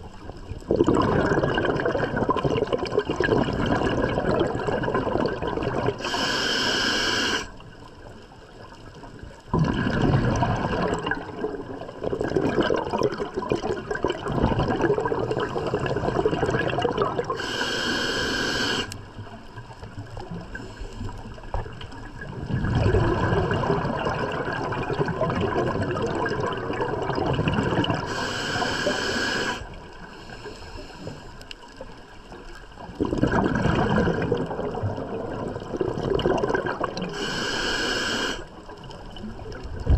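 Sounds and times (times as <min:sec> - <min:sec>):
exhaled bubbles gurgling: 0:00.0 - 0:39.9
regulator hissing inhalations: 0:06.0 - 0:07.5, 0:17.4 - 0:19.0, 0:28.0 - 0:31.4, 0:37.1 - 0:38.5.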